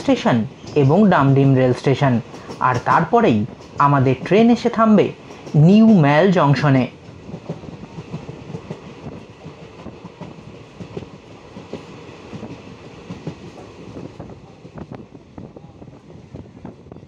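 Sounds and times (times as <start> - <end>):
train wheels rumbling on rail: 0.0 - 17.0
coach clicks and rattles: 2.3 - 4.4.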